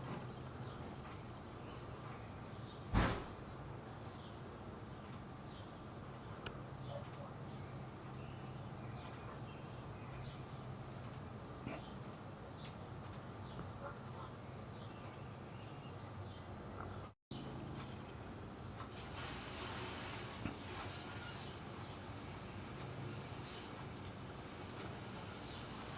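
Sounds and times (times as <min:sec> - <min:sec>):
low outdoor hum: 0:00.0 - 0:25.9
faint bird chirps: 0:21.2 - 0:23.8, 0:24.8 - 0:25.9.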